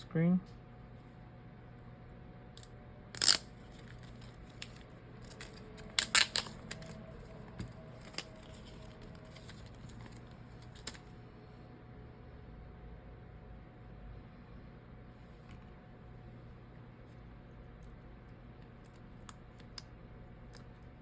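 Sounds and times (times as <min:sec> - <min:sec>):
phone repair tool clicks and snaps: 0:04.6 - 0:07.0.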